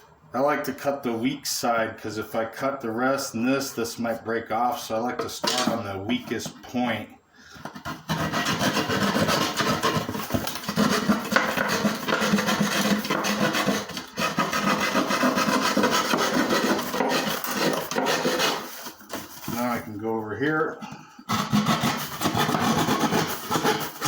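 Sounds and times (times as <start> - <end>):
drywall saw rasping: 7.5 - 19.9, 20.6 - 24.0.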